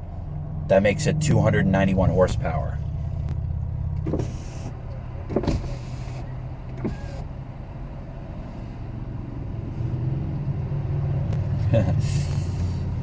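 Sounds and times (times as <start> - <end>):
car engine and road noise: 0.0 - 13.0
brief thump: 4.0 - 4.4.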